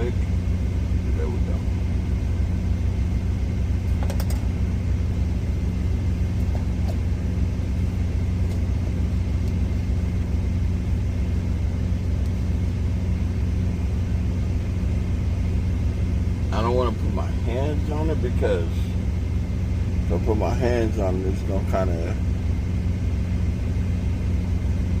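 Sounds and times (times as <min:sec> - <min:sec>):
diesel truck engine idling: 0:00.0 - 0:25.0.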